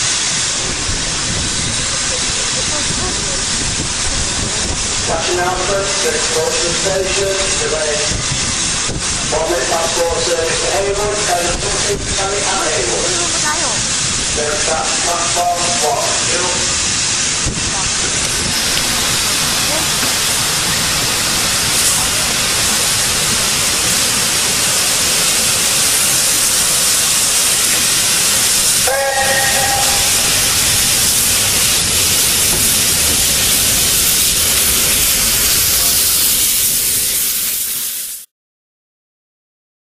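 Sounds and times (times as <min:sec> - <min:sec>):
steam locomotive hissing: 0:00.0 - 0:38.3
chime-like steam whistle: 0:28.8 - 0:30.6.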